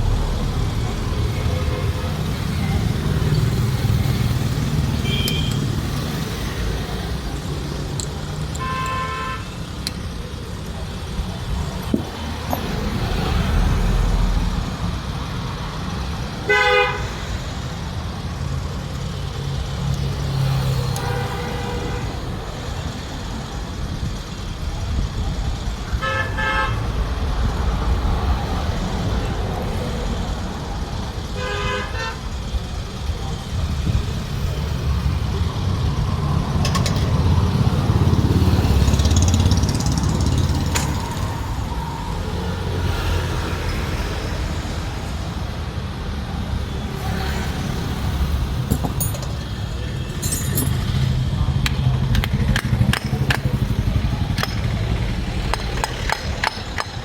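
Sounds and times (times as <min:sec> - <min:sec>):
low engine rumble: 0:00.0 - 0:16.5
vehicle horns honking: 0:01.0 - 0:06.3, 0:08.5 - 0:09.8, 0:16.4 - 0:17.3, 0:20.8 - 0:22.3, 0:25.9 - 0:26.9, 0:31.3 - 0:32.4.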